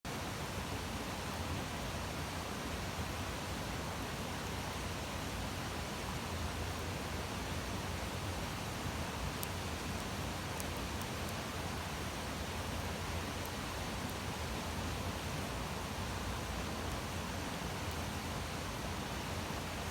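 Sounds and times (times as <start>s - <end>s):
fire crackle: 9.2s - 14.4s.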